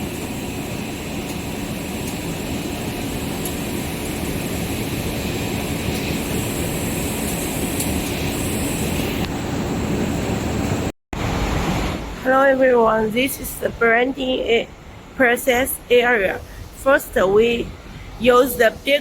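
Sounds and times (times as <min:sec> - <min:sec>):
thin high machine whine: 0:00.0 - 0:10.9
production line machinery drone: 0:00.0 - 0:12.2.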